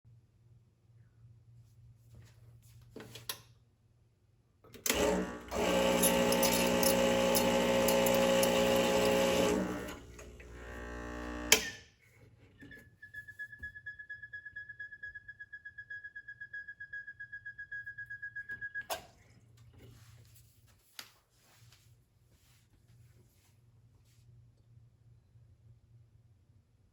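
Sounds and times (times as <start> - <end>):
espresso machine humming: 4.9 - 11.7.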